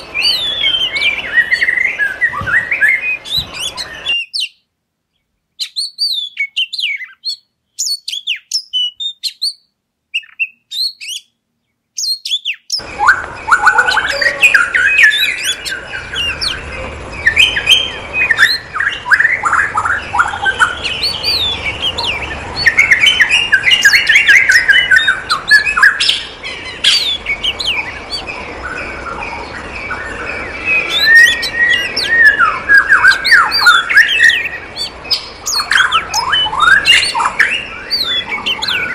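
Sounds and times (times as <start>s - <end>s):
small birds chirping and calling: 0.0s - 38.9s.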